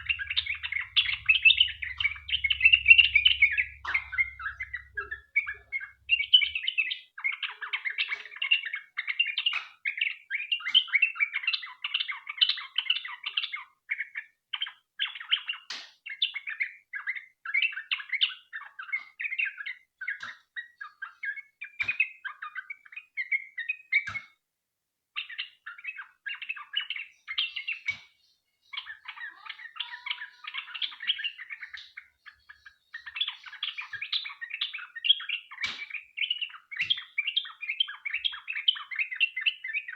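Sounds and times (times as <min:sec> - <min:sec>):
bulbul chattering chirps: 0:00.0 - 0:06.9, 0:26.6 - 0:39.4.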